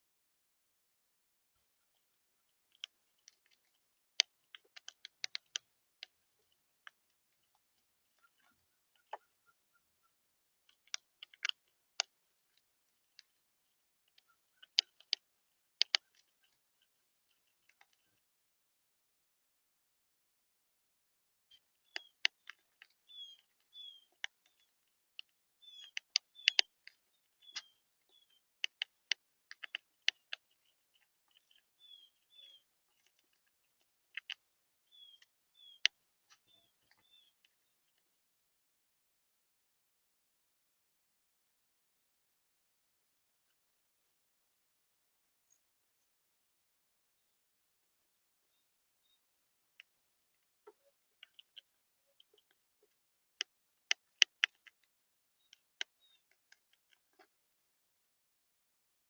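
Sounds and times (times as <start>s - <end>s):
birds pecking at feeder: 2.4s - 10.1s, 10.7s - 18.2s, 21.6s - 37.6s, 49.8s - 57.3s
beaks tapping on feeder: 21.9s - 24.7s, 25.6s - 33.4s.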